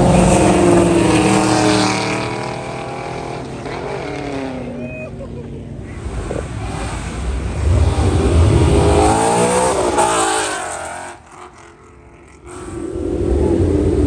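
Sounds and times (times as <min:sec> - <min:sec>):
car engine revving past: 0:00.0 - 0:04.8, 0:05.9 - 0:14.0
second car engine: 0:00.0 - 0:14.0.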